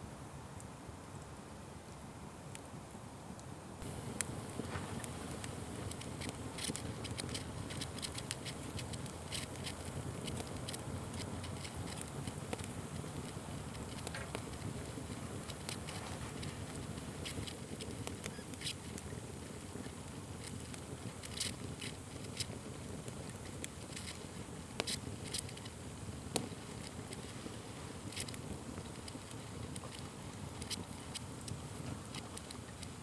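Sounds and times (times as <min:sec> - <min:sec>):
fire crackling and popping: 0:00.6 - 0:33.0.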